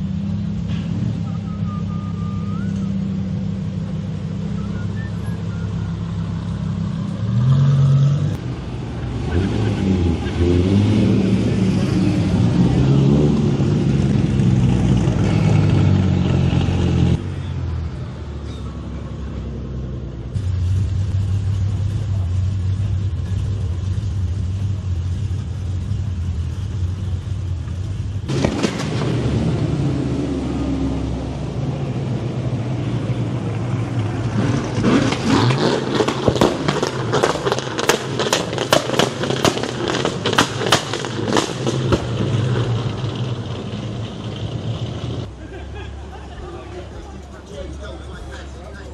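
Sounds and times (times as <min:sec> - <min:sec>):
car engines running: 0:00.0 - 0:48.9
rapid sharp cracks: 0:28.3 - 0:29.2, 0:35.0 - 0:43.2.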